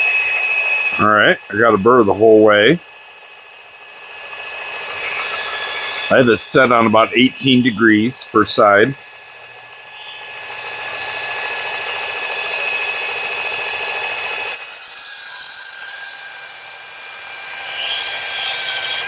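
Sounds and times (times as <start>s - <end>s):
sharpener motor whine: 0.0s - 19.0s
knife blade grinding on belt: 14.1s - 16.6s.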